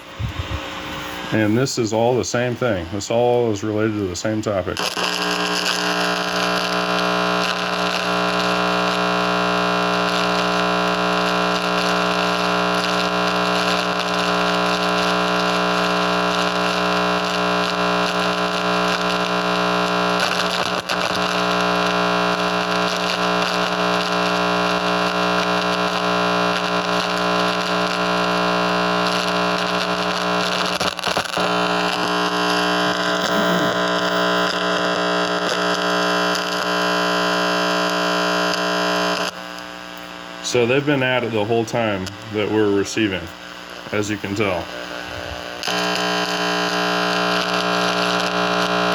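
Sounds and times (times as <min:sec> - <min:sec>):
electronic buzz with static: 0:04.7 - 0:48.9.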